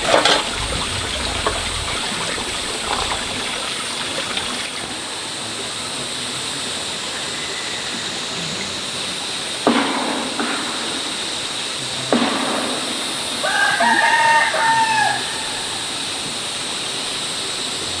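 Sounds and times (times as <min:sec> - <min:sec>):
running water rushing: 0:00.0 - 0:18.0
rooster crowing: 0:13.4 - 0:16.1.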